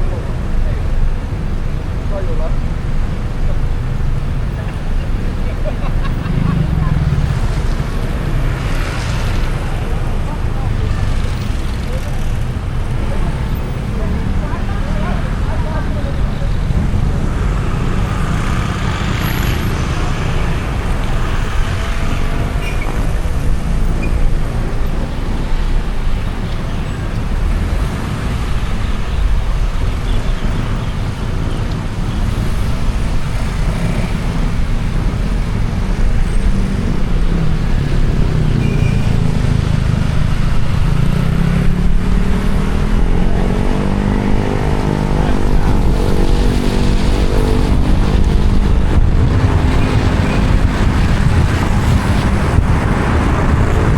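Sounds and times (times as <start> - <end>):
road traffic rumble: 0.0 - 53.9
engine speeding up: 36.4 - 53.9.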